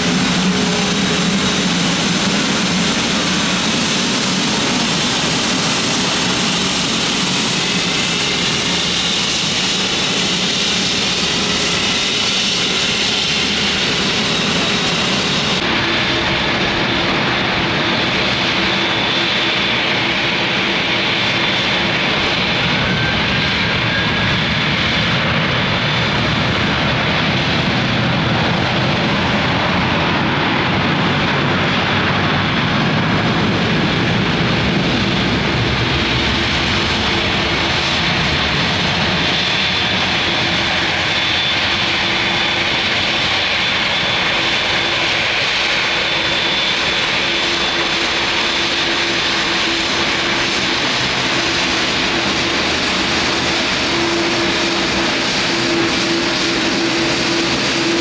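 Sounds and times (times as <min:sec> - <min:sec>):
airliner engines whining: 0:00.0 - 0:58.0.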